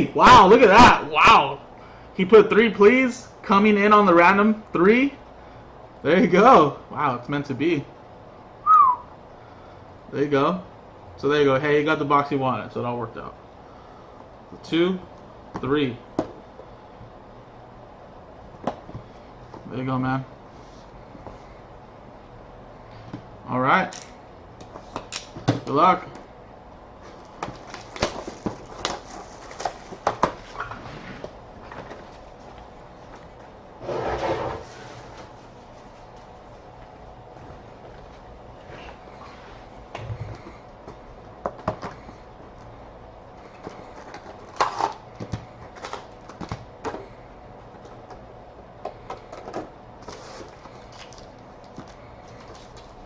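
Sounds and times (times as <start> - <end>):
card packaging clicking and crinkling: 27.1 - 30.5, 43.4 - 47.1, 48.9 - 53.0.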